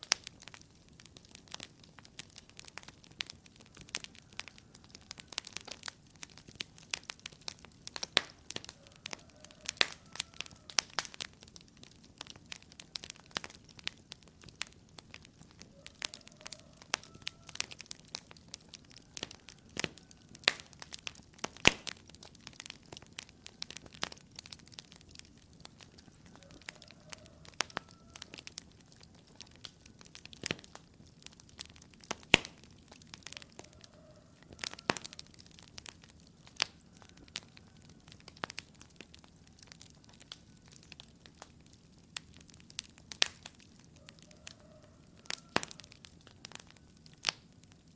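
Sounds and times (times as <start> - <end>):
wood fire crackling and popping: 0.0 - 47.9.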